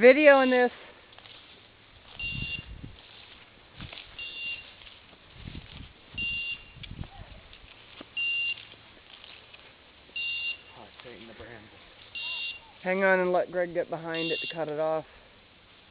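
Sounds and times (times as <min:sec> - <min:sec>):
footsteps through brush: 0:00.0 - 0:15.9
short high electronic beep: 0:04.2 - 0:04.6, 0:12.2 - 0:12.6.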